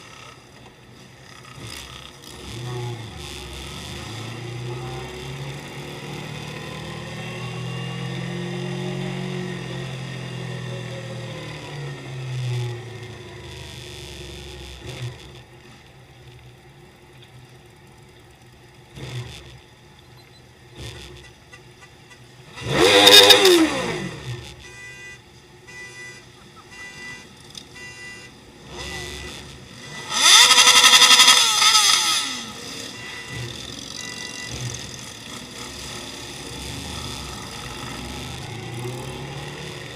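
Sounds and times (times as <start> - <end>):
motorcycles passing by: 0.0 - 16.4, 22.4 - 24.7, 28.4 - 39.9.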